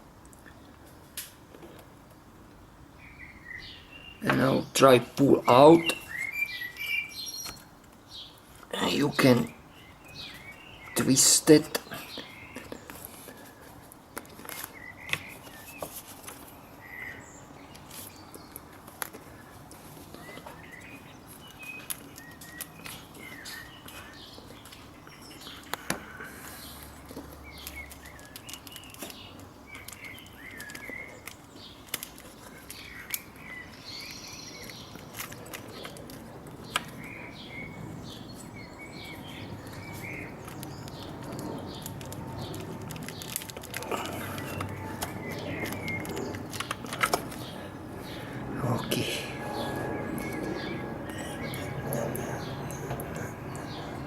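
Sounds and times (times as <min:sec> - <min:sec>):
birds chirping: 0:02.6 - 0:54.0.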